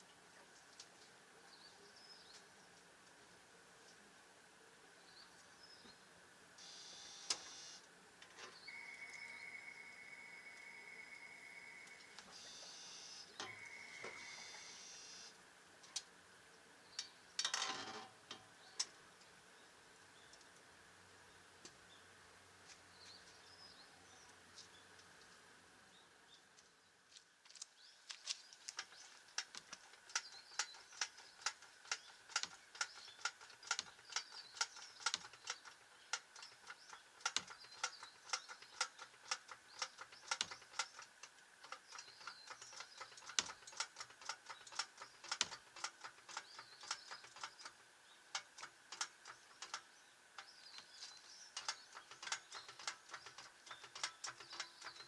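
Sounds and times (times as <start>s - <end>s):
ratchet-like mechanical clicking: 29.4s - 47.8s, 51.6s - 55.0s.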